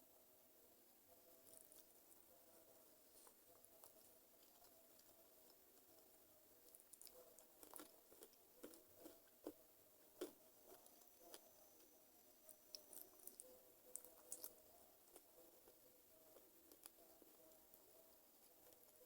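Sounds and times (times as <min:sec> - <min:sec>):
person chewing: 0:06.7 - 0:09.6, 0:10.2 - 0:11.4, 0:12.5 - 0:15.3.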